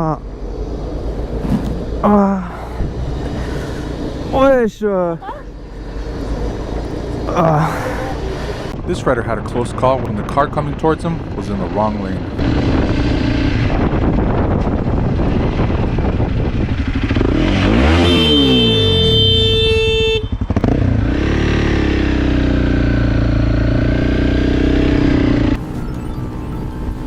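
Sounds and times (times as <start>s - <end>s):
motorcycle engine running: 10.4s - 27.0s
horn sounding: 17.7s - 20.6s.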